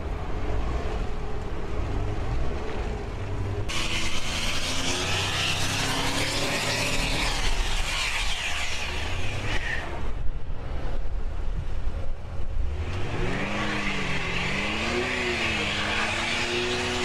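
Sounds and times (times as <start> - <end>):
car engine revving: 3.7 - 10.1, 12.6 - 17.0.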